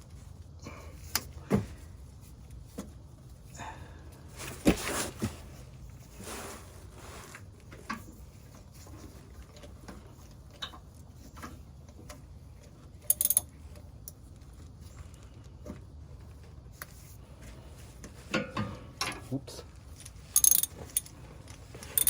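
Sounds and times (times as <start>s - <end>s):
hand tools clinking: 13.1s - 13.4s, 20.0s - 21.2s, 21.8s - 22.0s
socket wrench ratcheting: 13.1s - 13.4s, 20.4s - 21.1s.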